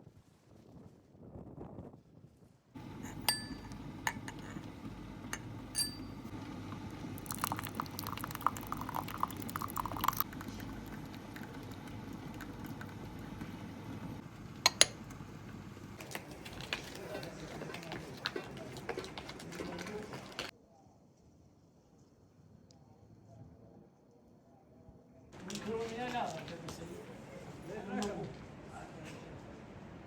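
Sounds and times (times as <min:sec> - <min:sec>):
dishes and utensils clinking: 0:02.8 - 0:06.3, 0:14.7 - 0:15.0
steady low hum: 0:02.8 - 0:16.0.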